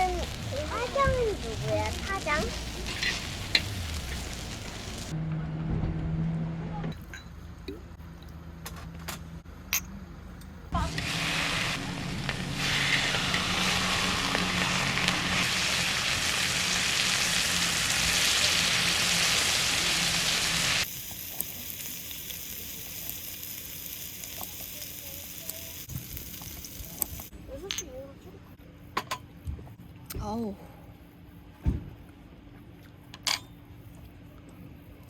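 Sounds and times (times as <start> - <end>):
beef sizzling on a grill: 0.0 - 5.1, 10.8 - 27.3.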